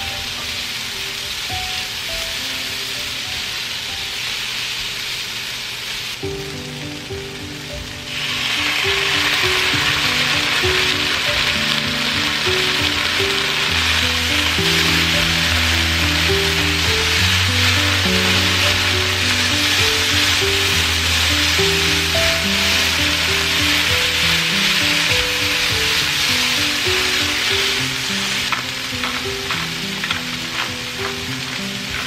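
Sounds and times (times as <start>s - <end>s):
food sizzling in a frying pan: 0.0s - 32.0s
spatula stirring food: 8.5s - 32.0s.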